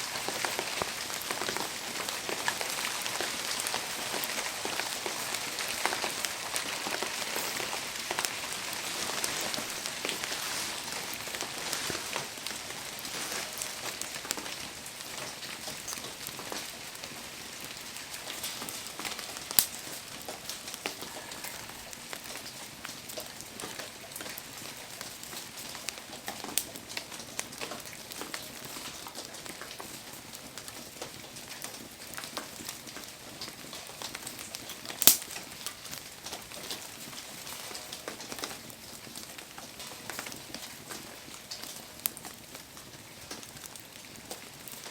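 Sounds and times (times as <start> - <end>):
bonfire crackling: 0.0 - 44.9
rain pattering: 0.0 - 44.9
sharp pop from fire: 35.0 - 35.4.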